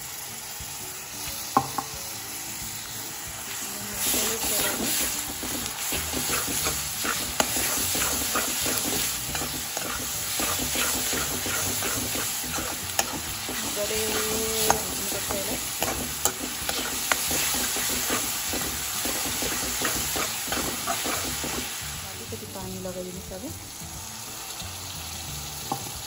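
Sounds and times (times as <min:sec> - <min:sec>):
onions sizzling in oil: 0:00.0 - 0:26.0
metal ladle scraping pan: 0:04.0 - 0:21.7.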